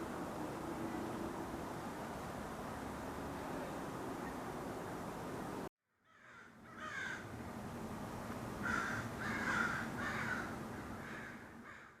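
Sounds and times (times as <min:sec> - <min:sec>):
steady rushing noise: 0:00.0 - 0:05.7
crows cawing: 0:06.0 - 0:07.3, 0:08.6 - 0:12.0.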